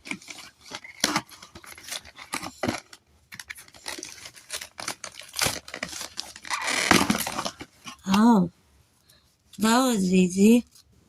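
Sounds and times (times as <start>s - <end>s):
cardboard and plastic rustling: 0.0s - 8.1s.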